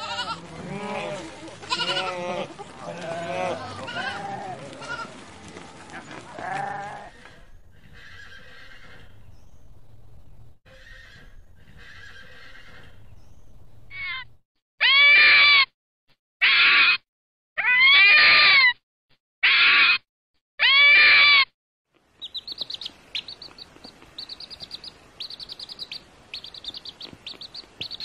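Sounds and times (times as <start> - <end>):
goat kid bleating: 0.0 - 5.1, 6.4 - 7.1, 16.4 - 17.0, 19.4 - 20.0.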